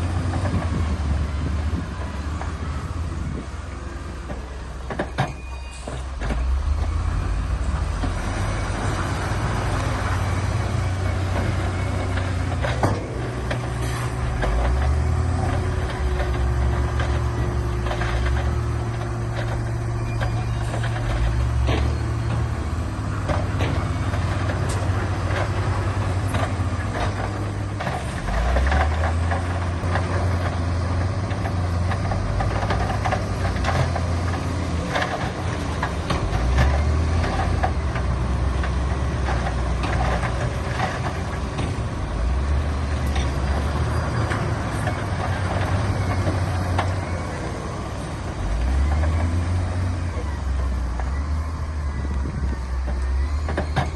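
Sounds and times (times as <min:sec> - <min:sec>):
diesel engine of heavy machinery: 0:00.0 - 0:53.9
knocks and clanks: 0:11.1 - 0:47.2.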